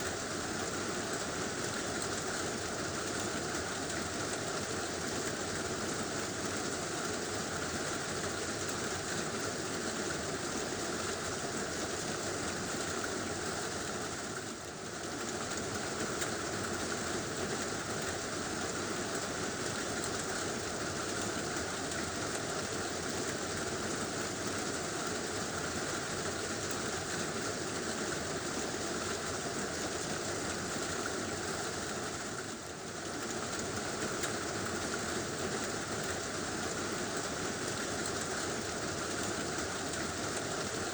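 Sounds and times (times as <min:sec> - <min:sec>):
heavy rain on a tin roof: 0:00.0 - 0:40.9.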